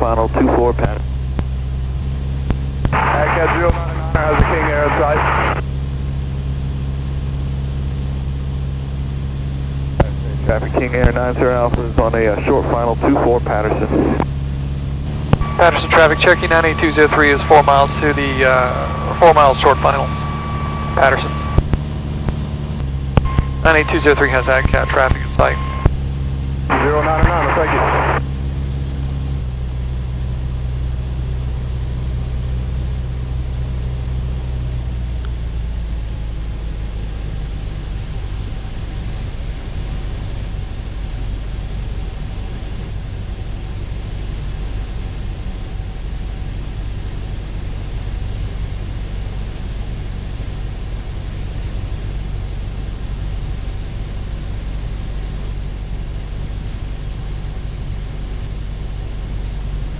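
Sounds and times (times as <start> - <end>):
airplane engine and propeller droning: 0.0 - 59.9
faint tone sliding down: 15.1 - 25.9.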